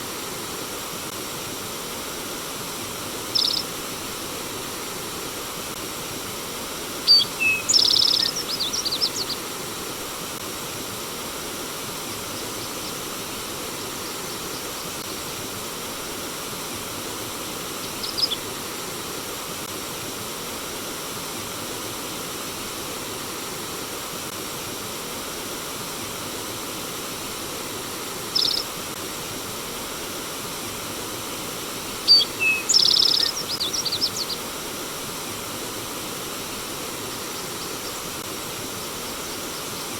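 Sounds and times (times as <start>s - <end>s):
stream water flowing: 0.0s - 39.9s
songbird singing: 3.3s - 3.8s, 7.1s - 9.5s, 17.8s - 18.5s, 28.3s - 28.7s, 32.0s - 34.5s, 37.1s - 38.1s.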